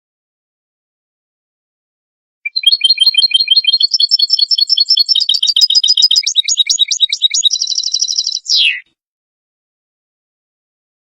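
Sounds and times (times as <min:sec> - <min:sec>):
goldfinch twittering song: 0:02.5 - 0:08.8.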